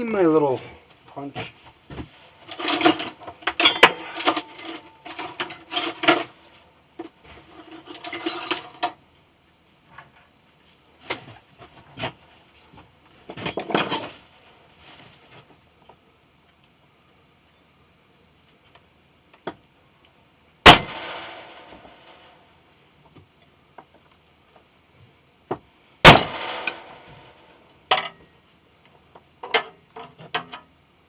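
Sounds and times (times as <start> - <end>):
metal hand tools clinking: 20.6 - 22.3, 26.0 - 27.4.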